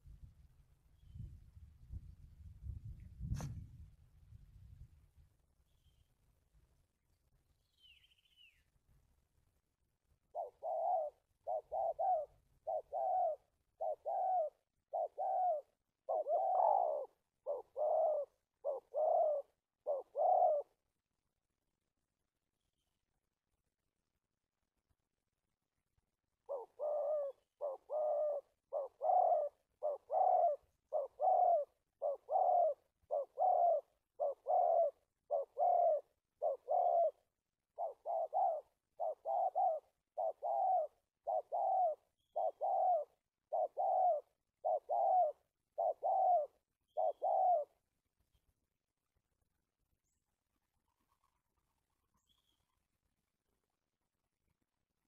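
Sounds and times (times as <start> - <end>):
dove cooing: 10.3 - 21.0, 26.4 - 47.9.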